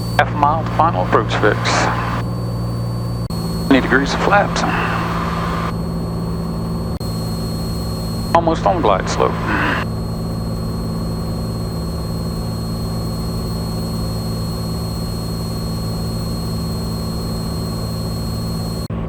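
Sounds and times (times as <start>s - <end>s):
aircraft engine and propeller droning: 0.0s - 19.0s
thin high whine: 0.0s - 19.0s.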